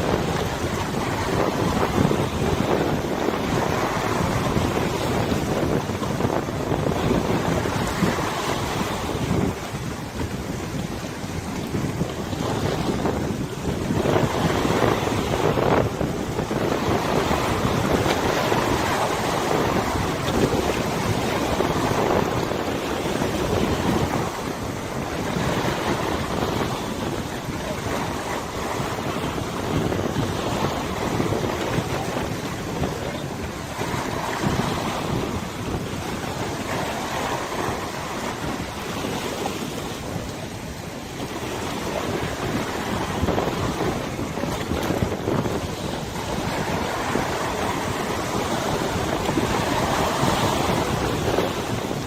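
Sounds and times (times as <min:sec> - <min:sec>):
waves lapping water: 0:00.0 - 0:52.0
wind buffeting microphone: 0:00.0 - 0:52.0.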